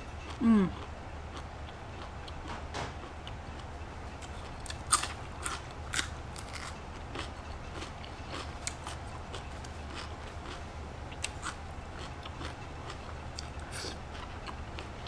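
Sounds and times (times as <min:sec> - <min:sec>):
low steady hum: 0:00.0 - 0:15.0
crunching raw vegetables: 0:04.2 - 0:14.9.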